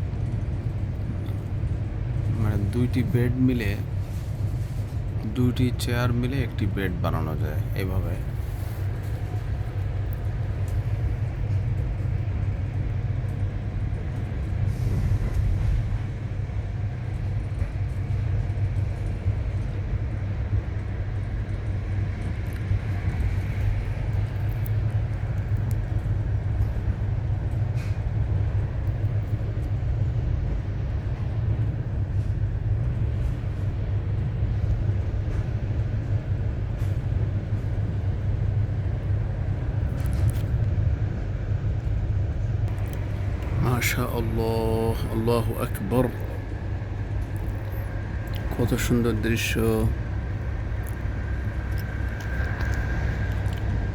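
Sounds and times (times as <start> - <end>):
train rumbling: 0.0 - 53.9.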